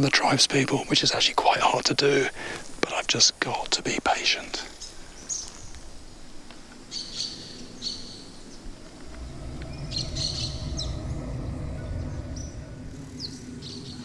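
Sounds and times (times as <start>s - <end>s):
birds chirping: 0.0s - 14.0s
low rumble: 7.6s - 14.0s.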